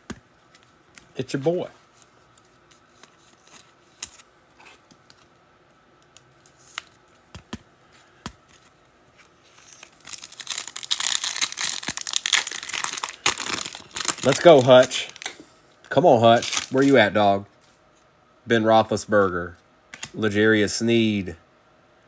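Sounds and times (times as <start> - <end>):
card pack wrapper ripping: 9.6 - 15.4, 16.3 - 17.1.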